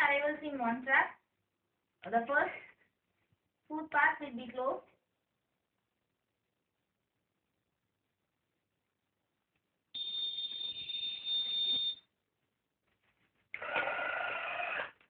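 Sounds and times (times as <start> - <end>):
electronic buzzer beep: 10.0 - 12.0.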